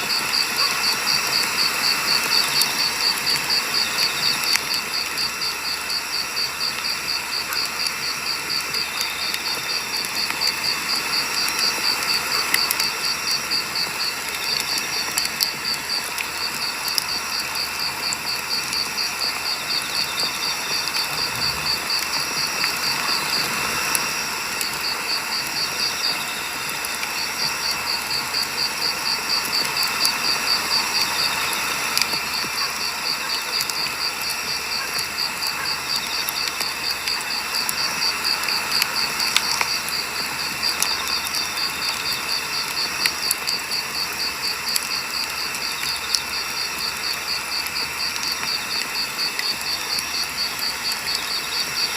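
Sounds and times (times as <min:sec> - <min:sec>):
campfire crackling and popping: 0:00.0 - 0:51.9
pulsing insect chirp: 0:00.0 - 0:51.9.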